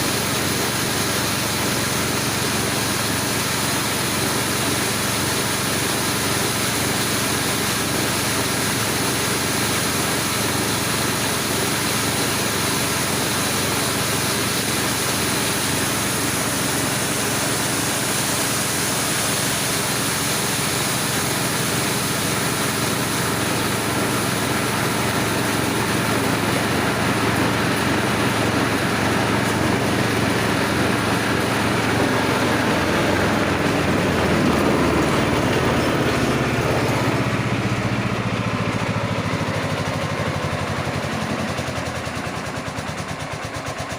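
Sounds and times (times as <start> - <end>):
grinding machine engine running: 0.0 - 43.9.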